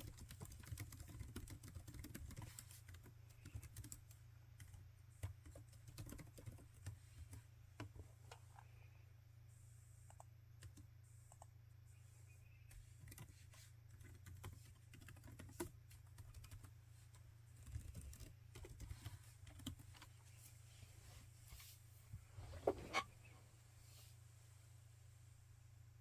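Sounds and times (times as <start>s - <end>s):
laptop keyboard typing: 0.0s - 7.9s, 10.1s - 11.5s, 12.6s - 20.1s
faint low hum: 0.0s - 26.0s.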